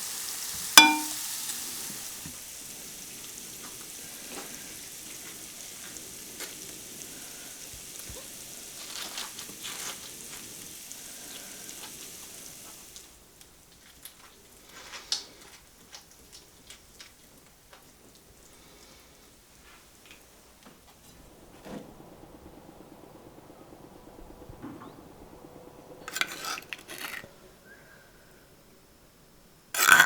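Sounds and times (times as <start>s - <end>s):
food sizzling in a pan: 0.0s - 21.9s, 26.0s - 27.3s, 29.8s - 30.0s
stirring clicks: 26.1s - 27.3s.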